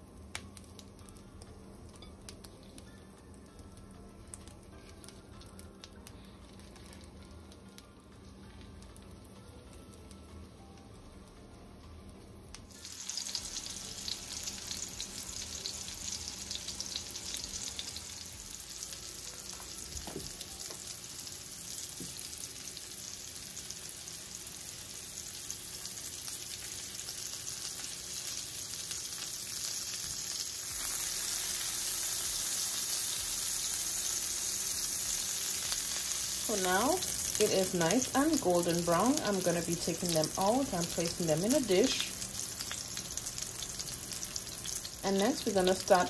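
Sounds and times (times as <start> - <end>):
fish sizzling in a skillet: 12.7 - 46.0.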